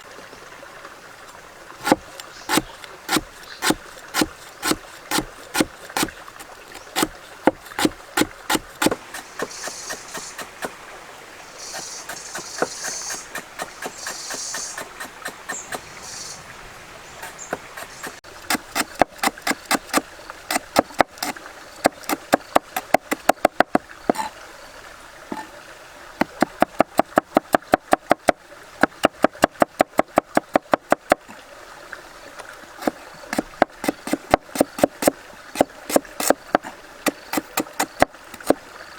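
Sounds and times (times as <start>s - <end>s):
knife chopping on wooden board: 1.8s - 10.7s, 11.7s - 15.8s, 17.2s - 24.3s, 26.2s - 31.2s, 32.8s - 36.4s, 37.1s - 38.6s
high hiss: 8.9s - 10.8s, 11.5s - 16.5s.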